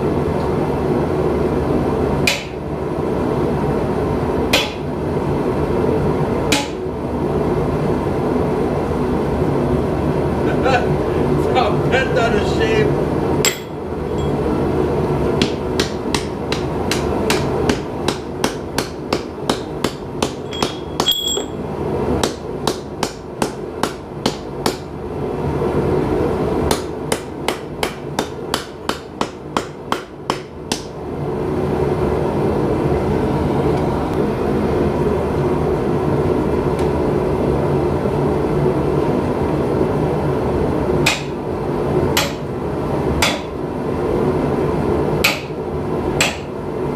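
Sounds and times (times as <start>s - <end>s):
hammer striking hot steel: 2.2s - 2.6s, 4.5s - 4.9s, 6.5s - 6.8s, 13.4s - 14.4s, 15.4s - 21.6s, 26.7s - 30.9s, 41.0s - 41.4s, 42.2s - 42.5s, 43.2s - 43.6s, 45.2s - 45.6s, 46.2s - 46.5s.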